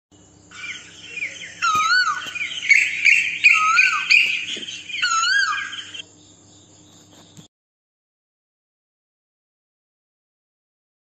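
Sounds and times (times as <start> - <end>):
high bird chirping: 0.2 - 7.5
bird whistling rising and falling: 0.5 - 6.0.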